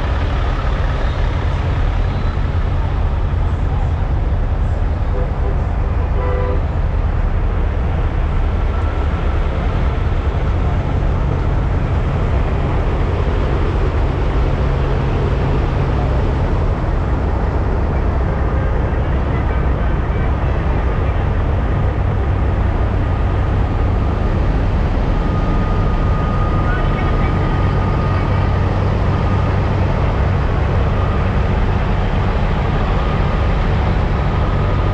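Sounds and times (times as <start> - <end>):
diesel truck engines rumbling: 0.0 - 34.9.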